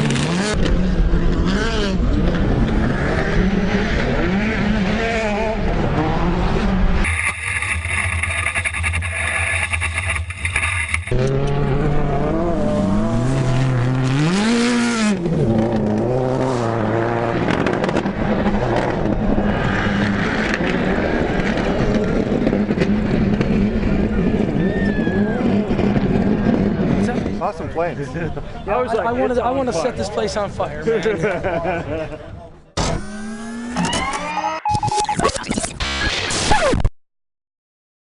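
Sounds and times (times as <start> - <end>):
tire scrabble on loose surface: 0.0 - 28.3
race car engines revving: 0.0 - 31.9, 32.7 - 34.6.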